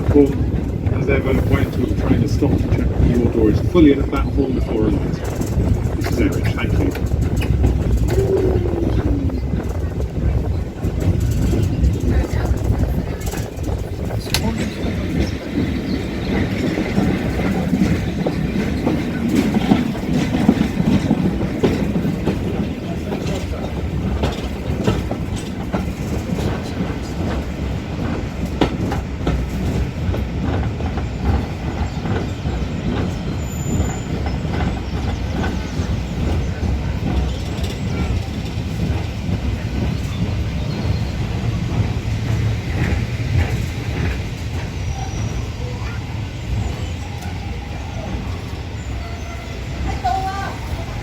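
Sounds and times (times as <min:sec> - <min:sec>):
train carriage rumble: 0:00.0 - 0:51.0
wheels clicking over rail joints: 0:00.0 - 0:51.0.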